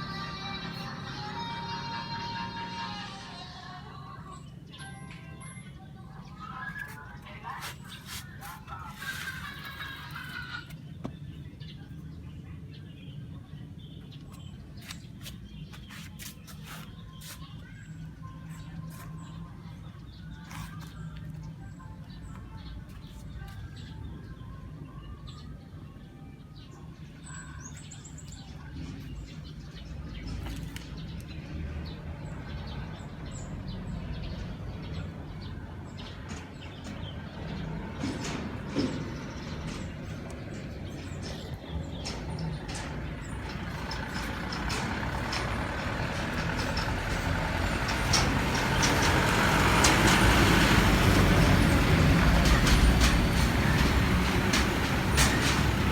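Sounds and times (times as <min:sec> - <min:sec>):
vehicle engine rumbling: 0:00.0 - 0:24.8, 0:27.0 - 0:55.9.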